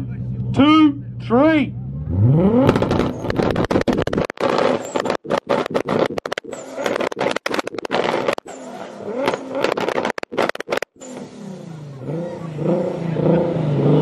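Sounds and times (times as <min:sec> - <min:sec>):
car engines revving: 0:00.0 - 0:14.0
rapid bangs and pops: 0:02.6 - 0:08.5, 0:09.3 - 0:11.0.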